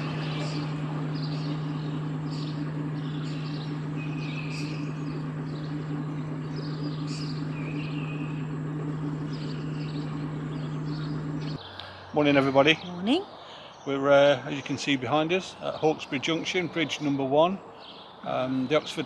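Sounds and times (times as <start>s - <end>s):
boat engine humming: 0.0s - 13.2s
birds chirping: 0.0s - 19.0s.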